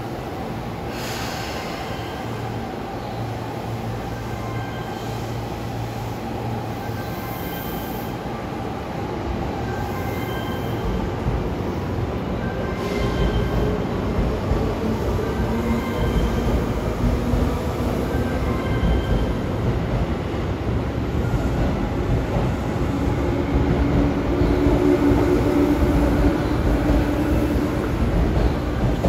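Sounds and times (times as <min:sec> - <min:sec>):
electric train rolling rumble: 0:00.0 - 0:29.0
faint high squeals: 0:09.8 - 0:11.0.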